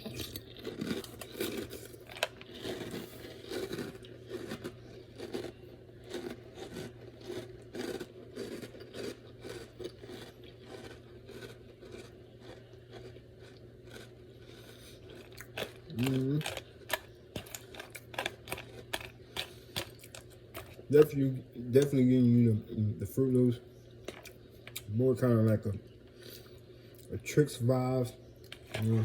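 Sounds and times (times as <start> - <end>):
person chewing crunchy cereal: 0.0 - 22.2, 24.0 - 25.0, 28.4 - 29.0
faint steady hum: 0.0 - 29.0.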